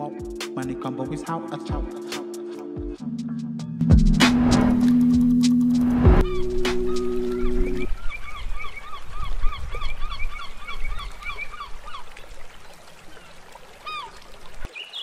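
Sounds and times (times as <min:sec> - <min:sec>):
low rumble: 0:03.9 - 0:07.9
bird honking calls: 0:06.2 - 0:12.1.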